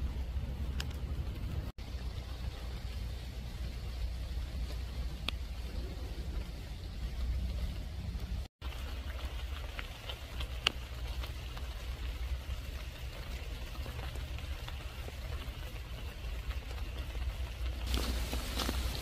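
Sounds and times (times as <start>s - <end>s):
low rumble: 0.0s - 9.1s
pouring rain: 0.0s - 19.0s
light ticks: 0.7s - 1.5s, 9.8s - 11.3s
footsteps on wet path: 4.4s - 19.0s.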